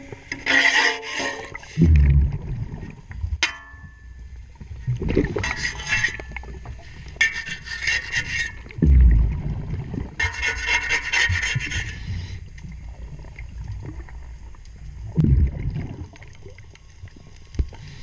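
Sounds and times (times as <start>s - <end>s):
scraping underwater: 0.0s - 3.4s, 4.6s - 18.0s
bubbles rumbling: 1.6s - 3.4s, 4.6s - 5.6s, 8.7s - 10.2s, 12.6s - 17.7s.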